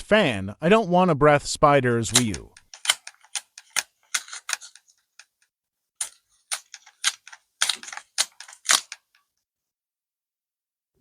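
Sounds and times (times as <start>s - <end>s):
tape clicking and crackling: 2.1s - 5.4s, 6.0s - 9.2s.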